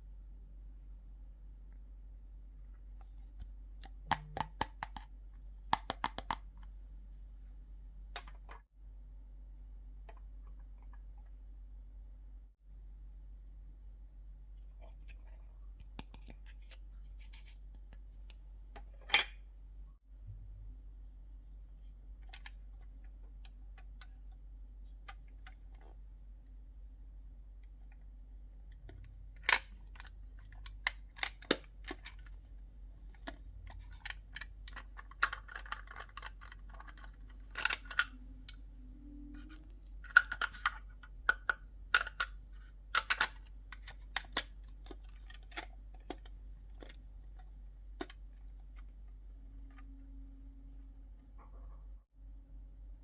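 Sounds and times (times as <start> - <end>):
plastic toy pieces clicking: 33.9 - 38.1, 40.1 - 42.3, 43.0 - 44.5.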